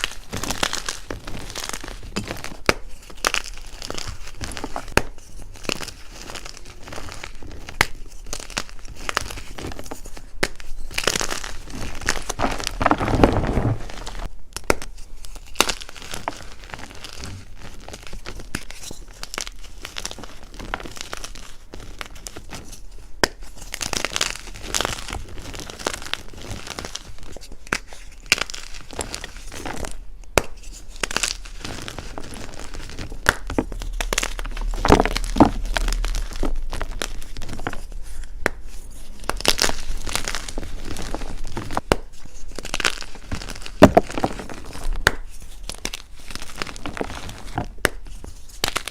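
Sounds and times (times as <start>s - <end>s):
chalk crunching: 27.7s - 48.9s.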